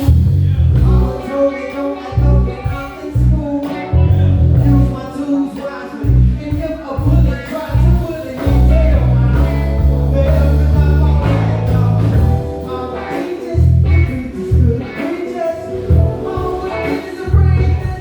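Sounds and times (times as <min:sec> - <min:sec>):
heavy bass notes: 0:00.0 - 0:05.3, 0:06.0 - 0:18.0
live band playing: 0:00.0 - 0:18.0.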